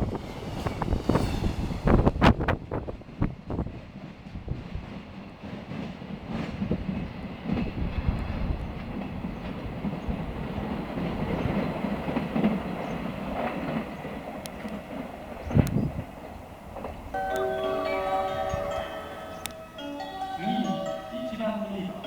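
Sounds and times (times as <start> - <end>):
train wheels clattering on rails: 0.0 - 21.7
freight train passing: 0.0 - 22.0.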